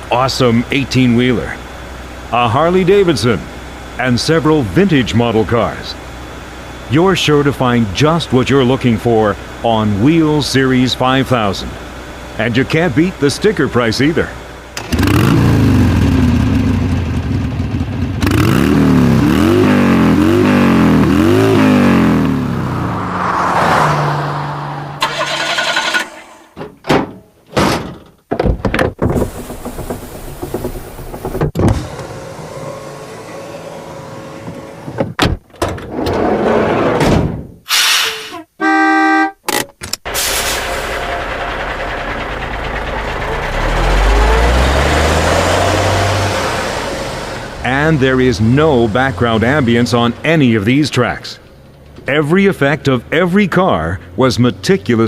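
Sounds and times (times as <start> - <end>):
car engine revving: 0.0 - 26.5, 40.1 - 55.0
sharp clunks and thunks: 26.5 - 32.1, 34.5 - 36.2, 36.9 - 37.6.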